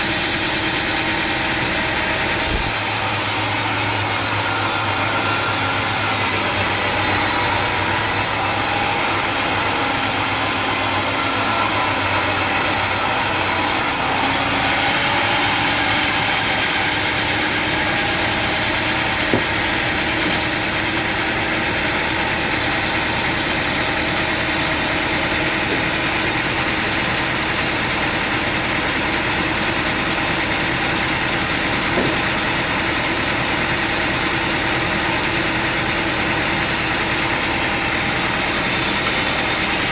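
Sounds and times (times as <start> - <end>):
brief knocks: 19.2 - 20.6.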